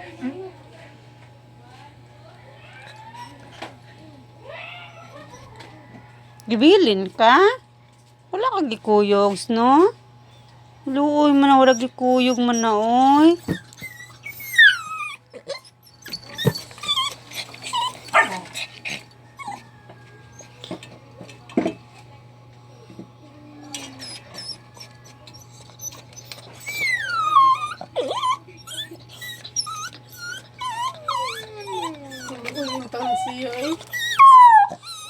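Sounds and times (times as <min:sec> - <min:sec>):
dog whining and whimpering: 0:02.7 - 0:03.6, 0:11.5 - 0:20.8, 0:23.5 - 0:35.0
dog yelping: 0:11.6 - 0:19.7, 0:23.7 - 0:35.0.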